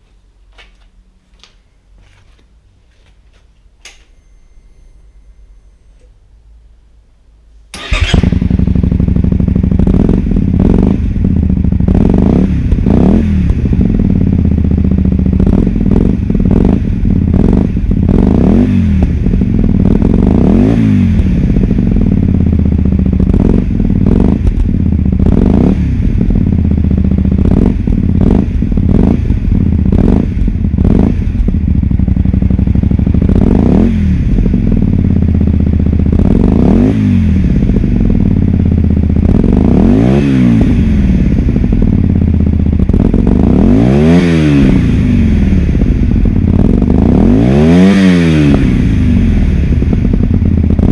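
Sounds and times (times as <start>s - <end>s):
motorcycle engine revving: 7.7s - 50.9s.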